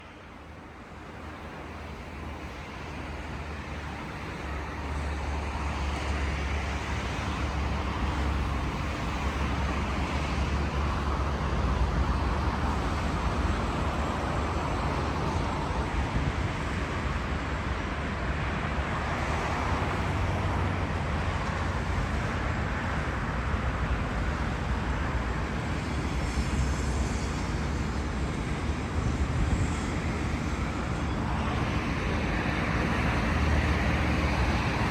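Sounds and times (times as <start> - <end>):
road traffic rumble: 0.0 - 34.9.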